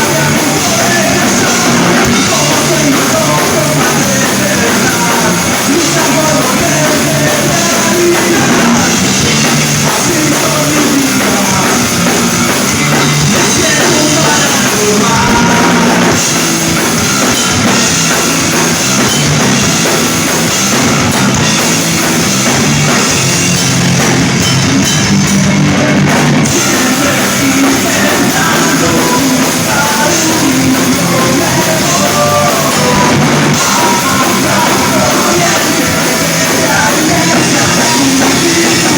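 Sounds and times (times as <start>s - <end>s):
person singing: 0.0s - 16.2s, 25.8s - 38.9s
drum kit: 0.0s - 38.9s
rock band playing live: 0.0s - 38.9s.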